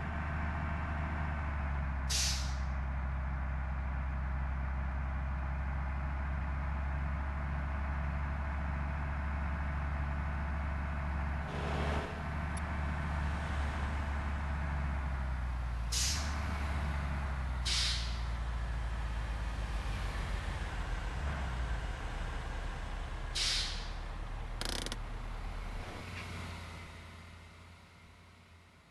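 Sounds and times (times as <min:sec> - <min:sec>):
diesel truck engine idling: 0:00.0 - 0:25.9
sharp air hiss: 0:02.1 - 0:02.6, 0:15.9 - 0:16.3, 0:17.7 - 0:18.2, 0:23.4 - 0:23.9.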